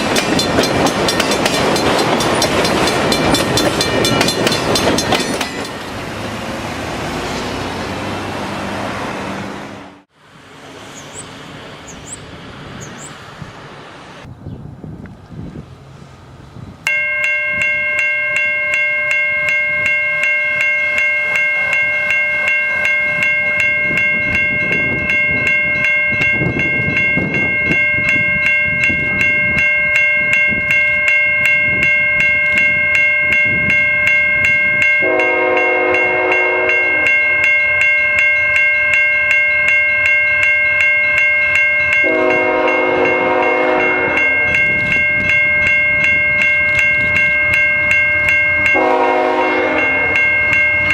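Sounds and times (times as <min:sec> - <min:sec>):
railroad crossing bell ringing: 0:00.0 - 0:08.3, 0:16.8 - 0:50.9
train rumble: 0:00.0 - 0:50.9
train horn blasts: 0:35.0 - 0:37.3, 0:42.0 - 0:44.6, 0:48.6 - 0:50.4.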